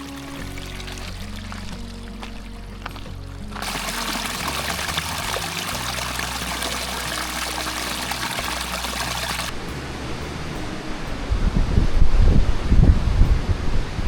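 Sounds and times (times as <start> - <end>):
running water pouring: 0.0 - 9.5.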